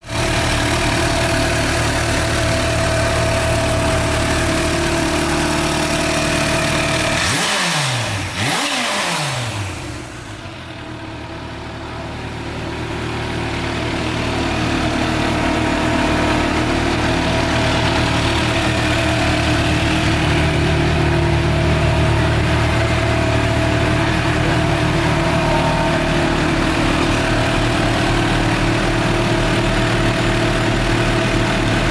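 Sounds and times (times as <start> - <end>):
motorcycle engine idling: 0.0 - 31.9
motorcycle throttle blips: 10.6 - 31.9.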